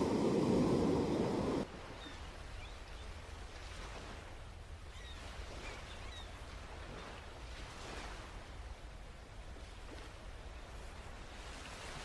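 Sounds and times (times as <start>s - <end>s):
low steady rumble: 0.0s - 1.6s.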